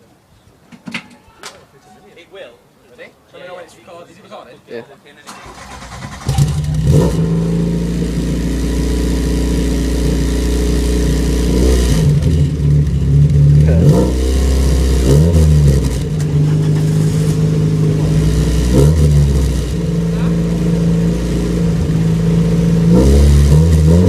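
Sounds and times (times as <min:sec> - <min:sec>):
car engine idling: 0:05.3 - 0:24.0
engine throttle blips: 0:05.3 - 0:24.0.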